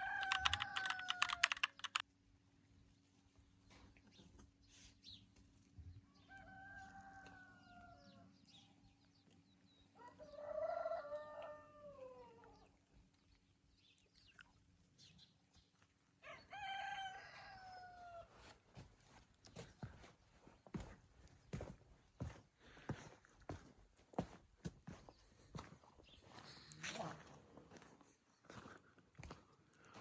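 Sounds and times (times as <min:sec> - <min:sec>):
rooster crowing: 0:00.0 - 0:01.8, 0:06.1 - 0:08.3, 0:10.0 - 0:12.4, 0:16.2 - 0:18.3.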